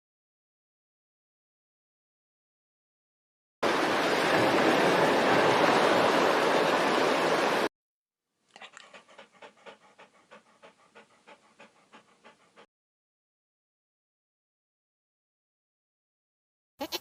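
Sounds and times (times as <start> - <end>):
dog panting: 8.5 - 12.7.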